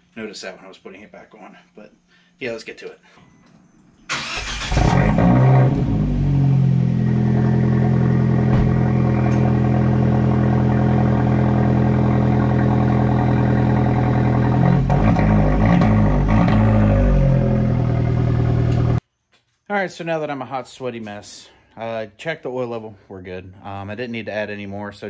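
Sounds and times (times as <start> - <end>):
car engine starting and idling: 4.1 - 19.0.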